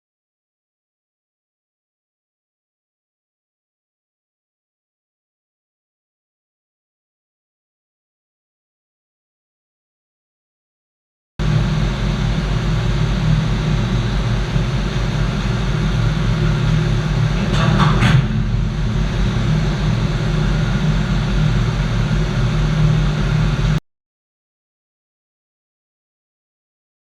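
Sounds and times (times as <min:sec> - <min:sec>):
engine room machinery drone: 0:11.4 - 0:23.8.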